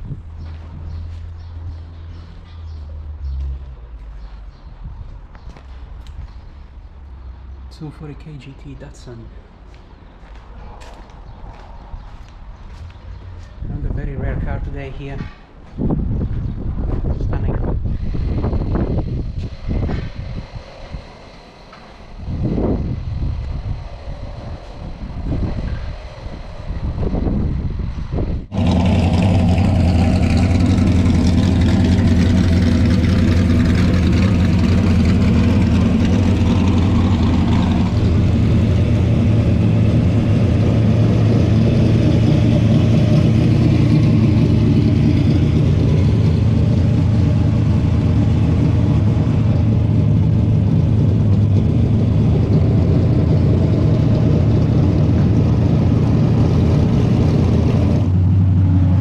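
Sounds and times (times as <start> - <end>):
racing car engine at high revs: 28.5 - 59.0.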